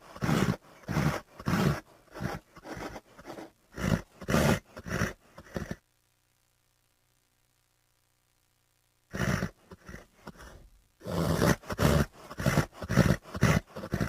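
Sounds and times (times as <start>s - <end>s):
horse snorting breathily: 0.0s - 5.8s, 9.2s - 14.0s.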